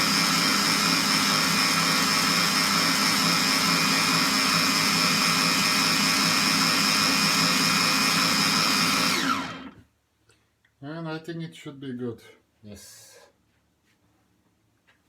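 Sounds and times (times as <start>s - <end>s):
electric blender whining: 0.0s - 9.8s.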